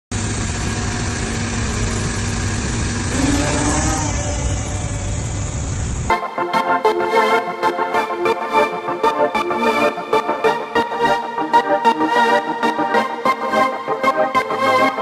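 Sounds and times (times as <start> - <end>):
traffic rumble: 0.1 - 6.1
organ-like keyboard music: 6.1 - 15.0.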